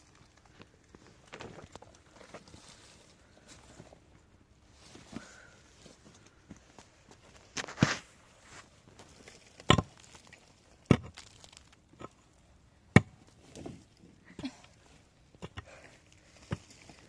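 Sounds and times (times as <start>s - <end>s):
rustling: 0.0s - 12.3s.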